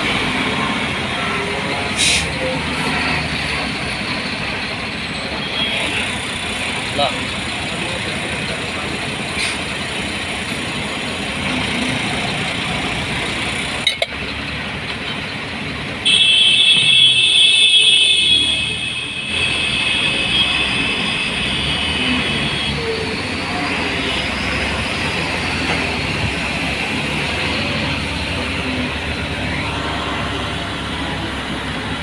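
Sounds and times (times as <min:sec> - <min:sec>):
vehicle running noise: 0:00.0 - 0:32.0
high-pitched squeal: 0:16.1 - 0:30.5.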